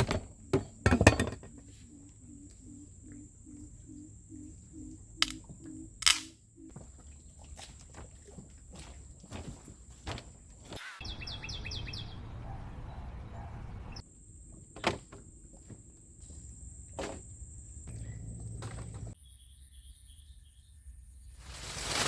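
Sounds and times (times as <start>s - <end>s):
outdoor background: 0.0s - 22.0s
faint bird calling: 1.6s - 6.8s.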